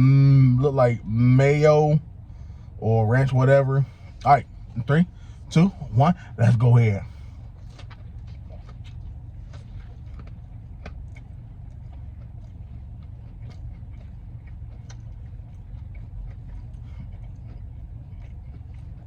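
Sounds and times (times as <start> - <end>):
steady low rumble: 0.0 - 19.0
person biting and chewing: 7.6 - 19.0.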